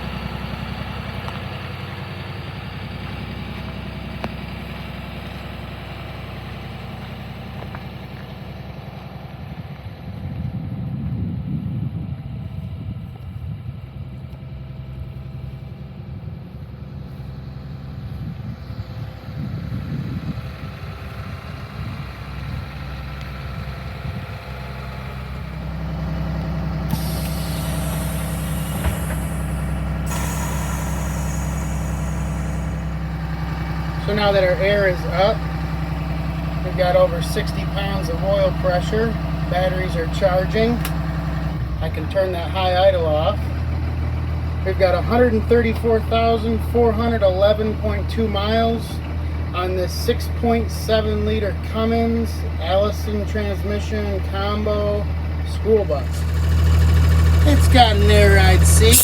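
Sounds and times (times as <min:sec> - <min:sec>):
diesel bus engine idling: 0:00.0 - 0:59.0
air hissing: 0:26.9 - 0:33.7, 0:56.0 - 0:59.0.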